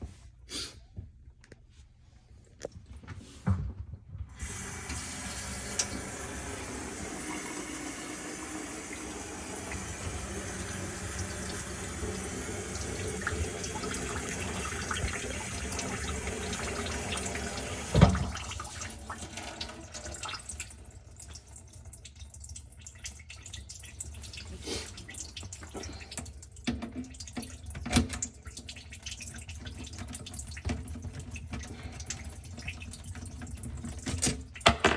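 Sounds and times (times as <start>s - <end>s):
faucet water running into sink: 4.4s - 34.9s
knocks and clicks in sink: 32.6s - 34.9s.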